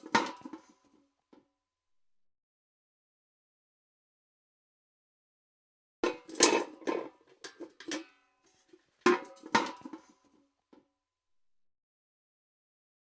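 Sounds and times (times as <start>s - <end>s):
steel bucket clanking: 0.0s - 0.7s, 6.0s - 10.2s.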